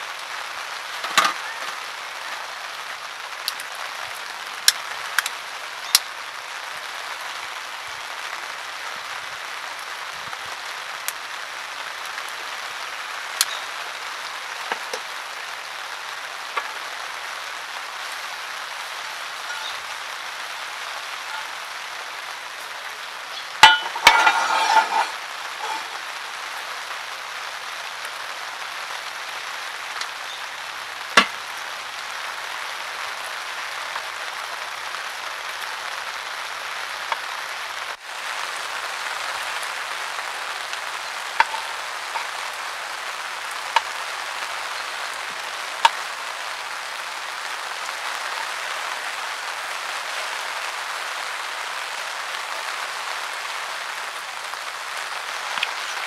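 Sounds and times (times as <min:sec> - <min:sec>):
food sizzling on a grill: 0:00.0 - 0:56.0
metal utensils clinking and scraping: 0:01.0 - 0:01.8, 0:19.4 - 0:20.0, 0:21.3 - 0:21.6, 0:23.4 - 0:26.1, 0:41.4 - 0:42.4.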